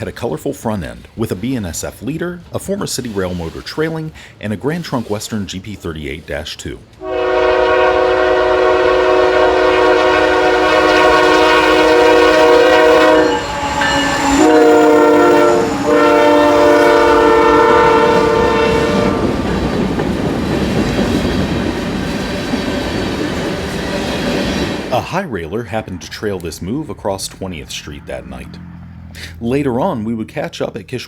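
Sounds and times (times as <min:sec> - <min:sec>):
train rumbling past: 0:00.0 - 0:30.5
locomotive air horn: 0:07.0 - 0:19.4
wheels clacking over rail joints: 0:11.0 - 0:25.0.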